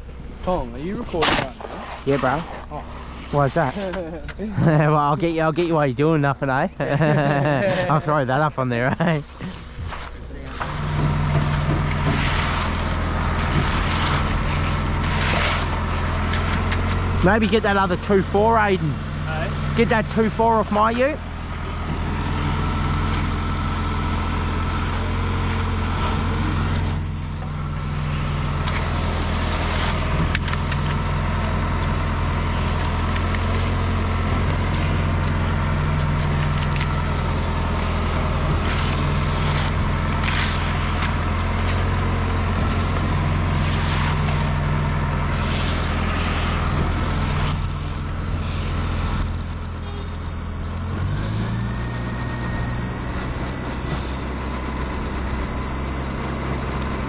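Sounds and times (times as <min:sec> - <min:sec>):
diesel truck engine running: 0:00.0 - 0:01.8, 0:02.6 - 0:57.0
electronic beeping alarm: 0:22.7 - 0:28.0, 0:47.5 - 0:47.9, 0:49.2 - 0:57.0.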